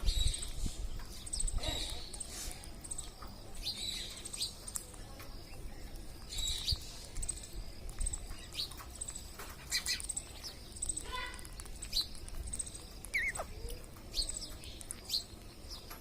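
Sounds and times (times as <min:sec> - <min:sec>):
parrots calling shrilly: 0:10.9 - 0:11.6, 0:13.0 - 0:13.8.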